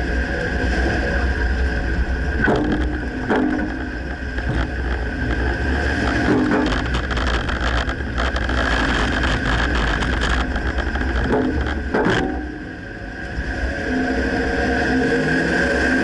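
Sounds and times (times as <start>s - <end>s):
engine and road drone: 0.0s - 16.0s
knocks and rattles: 2.4s - 12.6s.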